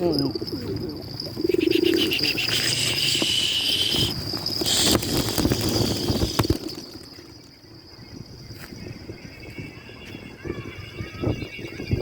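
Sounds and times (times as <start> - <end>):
insects shrilling: 0.0 - 7.7
pulsing buzzing trill: 1.3 - 7.2.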